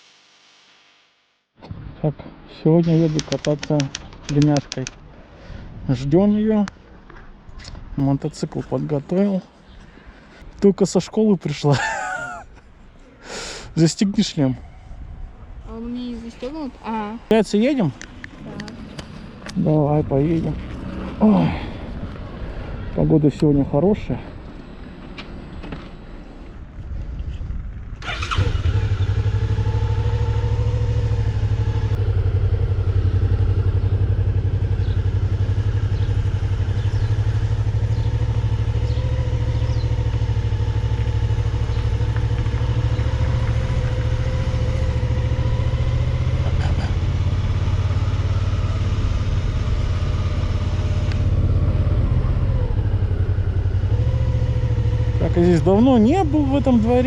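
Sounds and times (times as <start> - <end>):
motorcycle engine running: 28.1 - 57.0.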